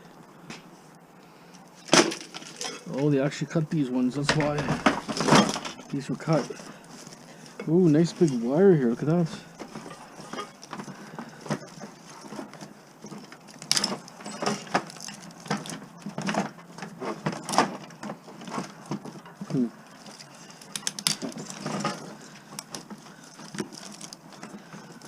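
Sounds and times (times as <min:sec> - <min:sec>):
metal parts knocking and clinking: 0:04.2 - 0:08.4, 0:09.1 - 0:12.4, 0:19.3 - 0:25.0.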